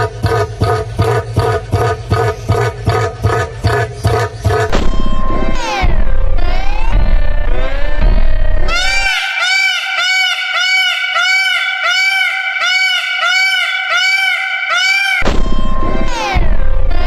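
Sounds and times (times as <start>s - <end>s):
animal high-pitched calls: 8.7s - 17.0s.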